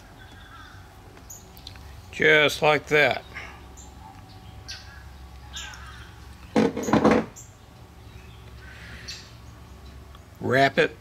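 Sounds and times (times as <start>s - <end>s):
bird calling loudly: 0.0s - 1.4s, 3.2s - 10.0s
steady low hum: 0.0s - 11.0s.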